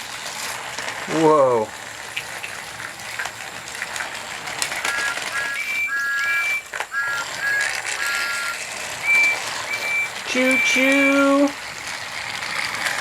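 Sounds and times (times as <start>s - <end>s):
toy trains running on track: 0.0s - 13.0s
electronic whistle beeps: 4.8s - 11.3s.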